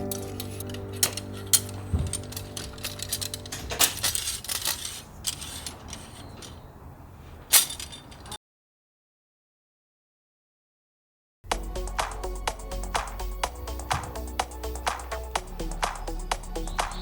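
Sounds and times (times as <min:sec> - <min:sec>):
background music: 0:00.0 - 0:04.0, 0:11.5 - 0:17.0.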